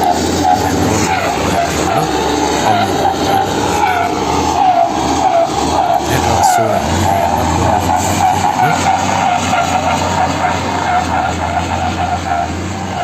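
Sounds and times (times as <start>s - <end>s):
diesel lorry engine under load: 0.0s - 13.0s.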